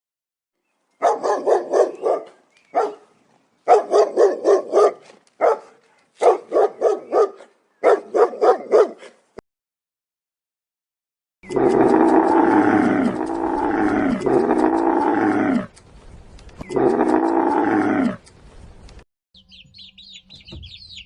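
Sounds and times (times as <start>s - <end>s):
dog barking: 1.0s - 3.1s, 3.7s - 9.2s.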